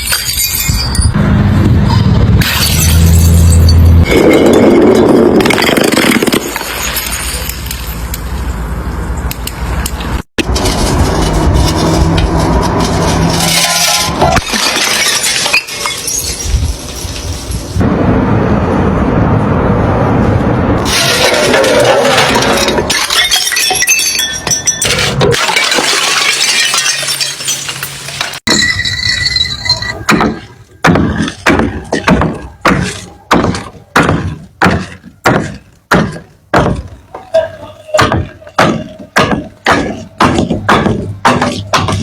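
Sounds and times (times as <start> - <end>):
glass shattering: 0.0 - 1.2, 2.4 - 8.0, 12.9 - 17.8, 20.9 - 33.6.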